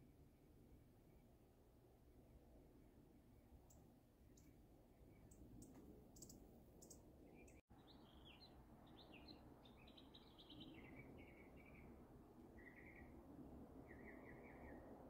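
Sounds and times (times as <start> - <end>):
faint high bird ticks: 3.6 - 7.6
bird chirps: 3.7 - 12.0, 12.6 - 13.2, 13.9 - 14.9.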